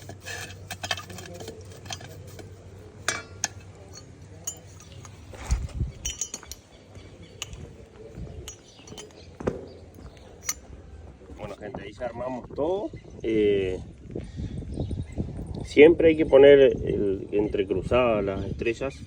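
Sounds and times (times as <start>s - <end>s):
metal parts clinking and knocking: 0.0s - 10.7s.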